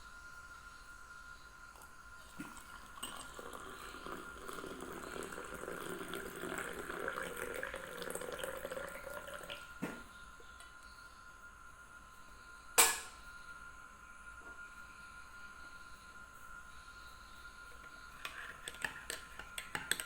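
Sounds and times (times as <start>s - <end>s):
water running: 1.8s - 10.0s, 17.8s - 20.0s.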